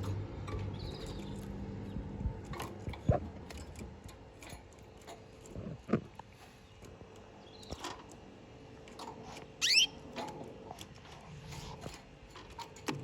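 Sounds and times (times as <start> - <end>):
canary chirp: 0.5 - 1.9, 9.6 - 10.0.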